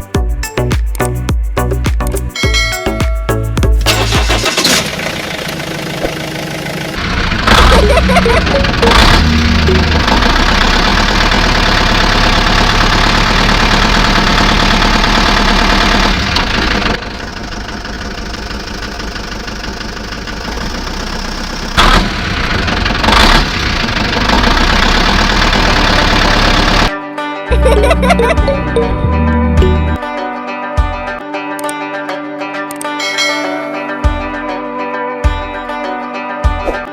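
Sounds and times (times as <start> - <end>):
engine running: 3.8 - 26.9, 27.5 - 30.1.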